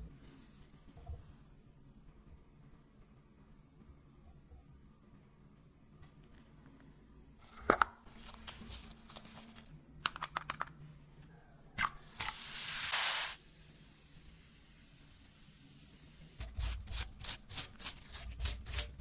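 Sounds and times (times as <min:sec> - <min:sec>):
clicks and knocks of handling: 0:10.0 - 0:10.8
short hiss: 0:12.2 - 0:13.5.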